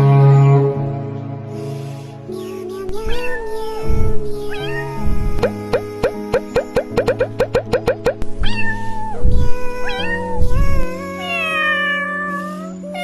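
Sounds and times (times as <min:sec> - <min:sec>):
soft background music: 0:00.0 - 0:13.0
cat meowing: 0:03.0 - 0:03.6, 0:04.5 - 0:05.6, 0:08.4 - 0:13.0.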